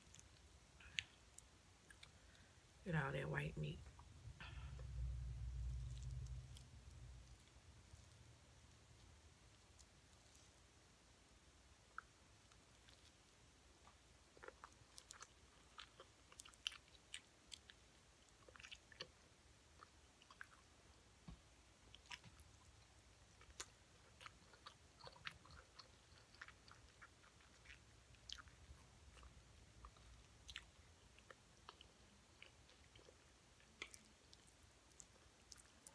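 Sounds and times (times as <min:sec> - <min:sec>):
chewing and biting fish: 0:11.9 - 0:20.7, 0:21.9 - 0:35.9.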